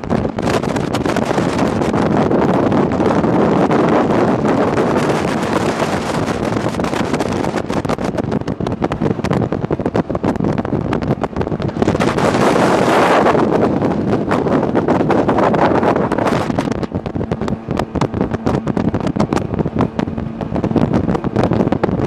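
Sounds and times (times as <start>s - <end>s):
jet boat engine: 0.0s - 22.0s
rushing water: 0.0s - 22.0s
wind buffeting microphone: 0.0s - 22.0s.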